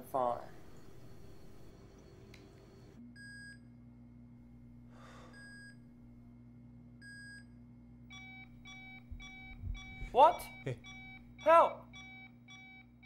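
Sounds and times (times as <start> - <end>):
low steady hum: 0.0 - 13.0
patient monitor beeping: 0.1 - 3.6, 8.1 - 13.0
fast high alarm beep: 8.1 - 13.0.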